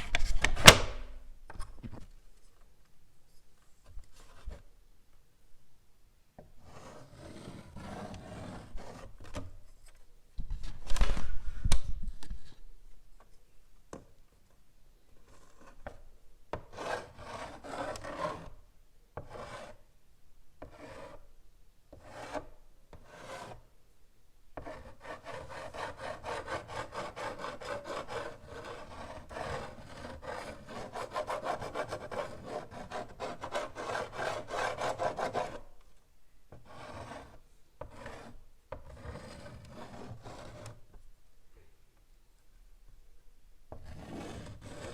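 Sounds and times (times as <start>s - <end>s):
chalk scratching on blackboard: 6.6s - 9.2s, 15.2s - 18.6s, 19.2s - 19.9s, 20.6s - 21.3s, 21.9s - 23.7s, 24.6s - 35.7s, 36.5s - 40.9s, 43.7s - 44.9s.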